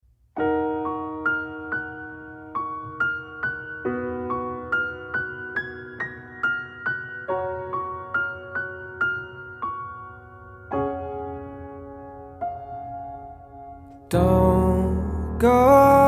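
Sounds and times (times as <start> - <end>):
slow piano music: 0.2 - 16.0.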